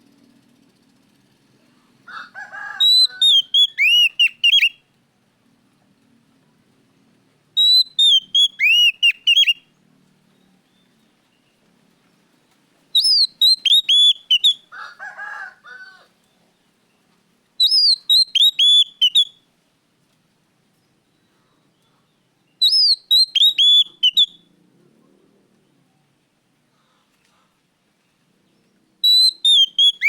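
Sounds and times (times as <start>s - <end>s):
bird singing whistled phrase: 2.8s - 4.8s, 7.6s - 9.6s, 13.0s - 14.6s, 17.6s - 19.3s, 22.6s - 24.4s, 29.0s - 30.0s.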